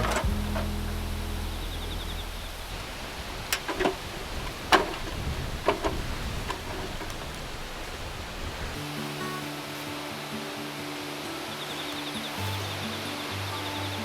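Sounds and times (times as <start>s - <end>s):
steady low hiss: 0.0s - 14.0s
metal toolbox clicks and knocks: 3.6s - 7.3s.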